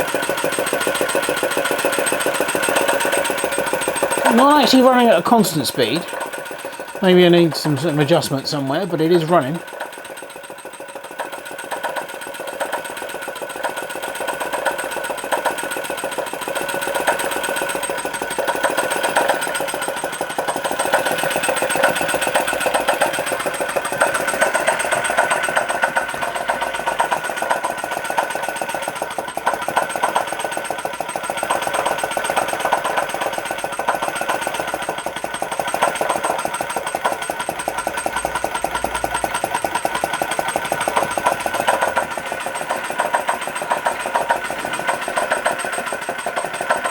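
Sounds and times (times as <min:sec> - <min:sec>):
small engine ticking: 0:00.0 - 0:46.9.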